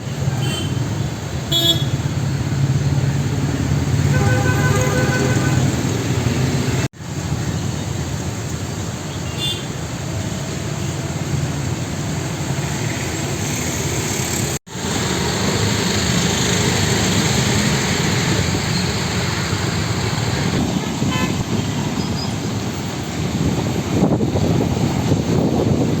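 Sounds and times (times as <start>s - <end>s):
road traffic: 0.0s - 26.0s
car horn toots: 4.1s - 5.8s.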